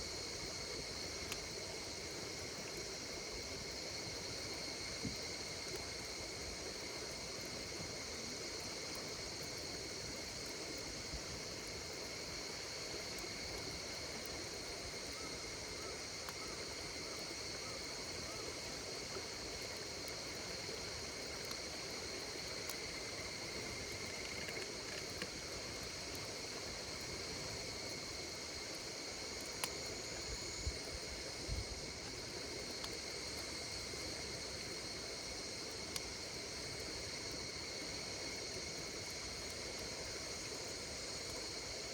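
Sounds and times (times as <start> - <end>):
campfire hissing: 0.0 - 41.9
night insects trilling: 0.0 - 41.9
burning wood crackles: 18.7 - 41.5.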